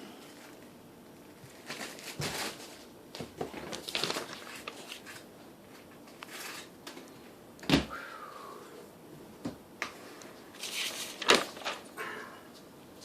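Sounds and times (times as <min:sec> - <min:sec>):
food packaging crinkling: 0:01.4 - 0:06.7, 0:10.6 - 0:11.9.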